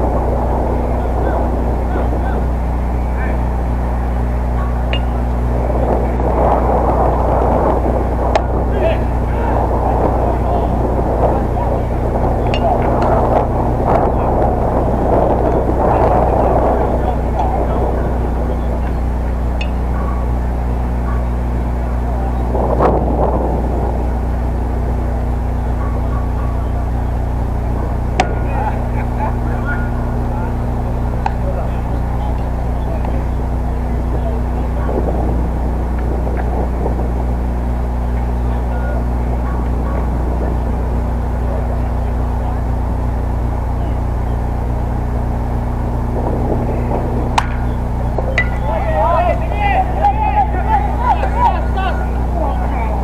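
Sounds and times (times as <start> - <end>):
low outdoor background hum: 0.0 - 53.0
sharp crack: 47.3 - 48.7.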